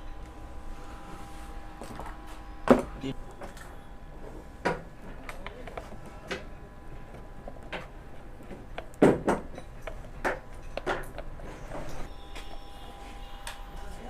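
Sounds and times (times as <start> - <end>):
clicks and knocks of fan parts: 4.6 - 12.1.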